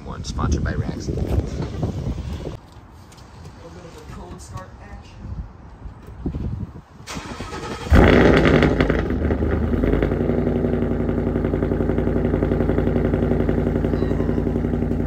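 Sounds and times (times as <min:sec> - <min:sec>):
car engine starting and idling: 0:07.0 - 0:15.0.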